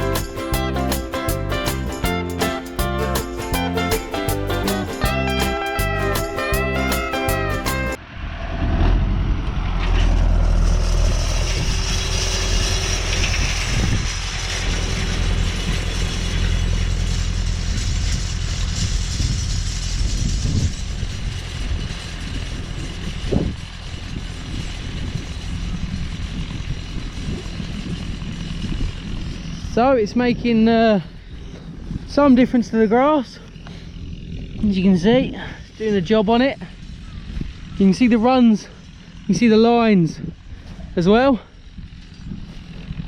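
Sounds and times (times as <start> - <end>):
chain harrow rattling: 0.0 - 8.0, 10.1 - 30.8
tractor engine rumble: 0.0 - 43.0.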